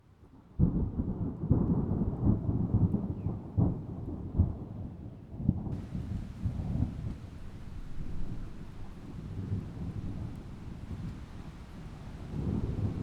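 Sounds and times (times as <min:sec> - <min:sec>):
rain hiss: 0:05.8 - 0:13.0
thunder rumbling: 0:05.8 - 0:13.0.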